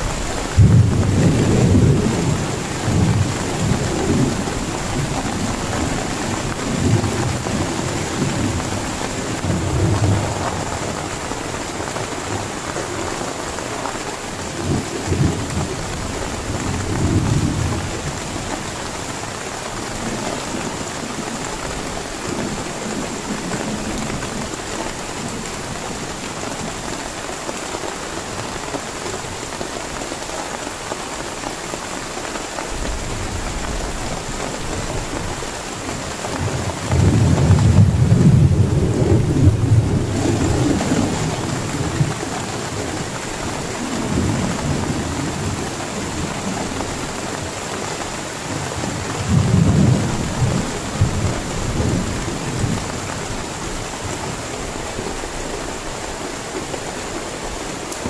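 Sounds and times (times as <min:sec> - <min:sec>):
thunder rumbling: 0:00.0 - 0:13.2, 0:36.2 - 0:47.3, 0:48.5 - 0:54.4
heavy rain falling: 0:00.0 - 0:58.0.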